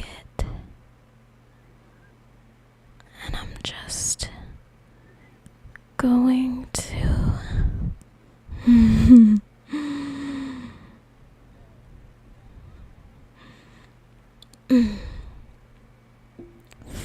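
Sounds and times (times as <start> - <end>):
faint low hum: 0.0 - 17.0
woman grunting and sighing: 8.6 - 10.8, 14.7 - 15.3.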